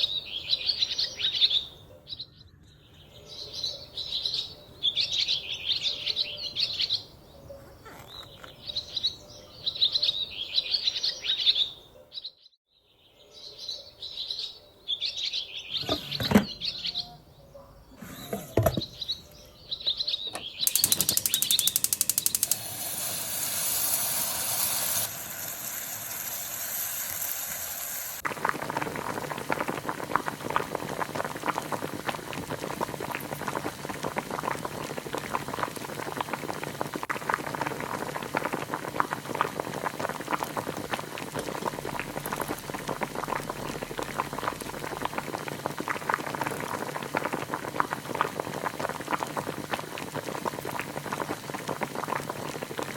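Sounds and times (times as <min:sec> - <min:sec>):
soup boiling with bubbles popping: 0:20.6 - 0:52.9
hiss: 0:20.7 - 0:28.2.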